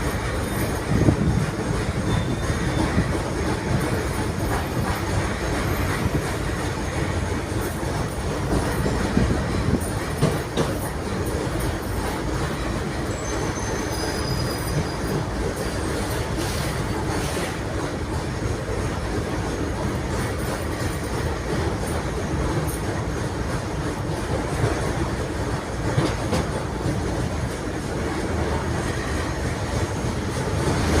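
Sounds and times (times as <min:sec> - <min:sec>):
tram wheels rumbling on rails: 0:00.0 - 0:31.0
faint wheel squeals: 0:02.0 - 0:03.1, 0:13.1 - 0:15.9.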